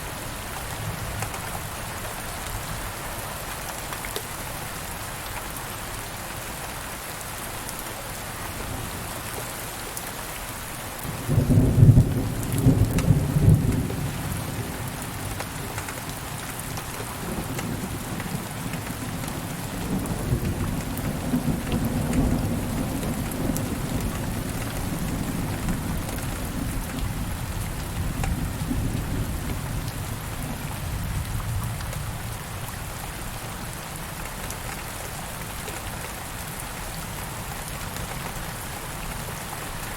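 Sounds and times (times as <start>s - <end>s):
steady rain falling: 0.0s - 39.9s
thunder crack and rumble: 11.1s - 16.3s, 17.0s - 32.4s.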